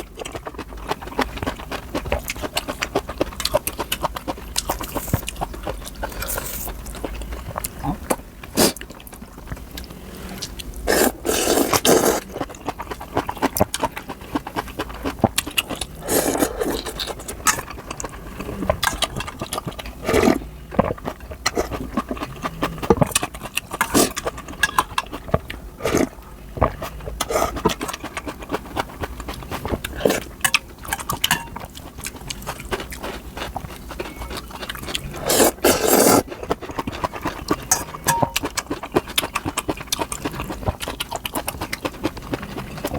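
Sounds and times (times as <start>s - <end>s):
wet chewing: 0.0s - 42.9s
slurping noodles: 6.0s - 6.7s, 10.1s - 12.4s, 15.6s - 17.6s, 23.8s - 24.3s, 34.9s - 36.4s.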